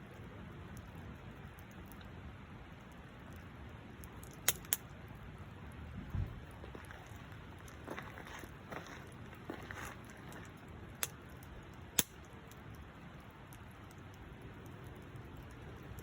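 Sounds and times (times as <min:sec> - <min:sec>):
wood fire crackling: 0:00.0 - 0:16.0
sharp pops from fire: 0:03.3 - 0:05.2, 0:09.3 - 0:16.0.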